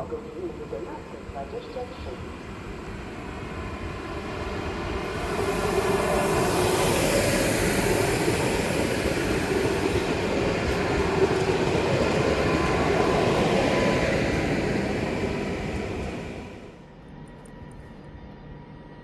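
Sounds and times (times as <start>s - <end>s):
faint steady tones: 0.0s - 10.8s
train wheels rumbling: 1.2s - 16.7s.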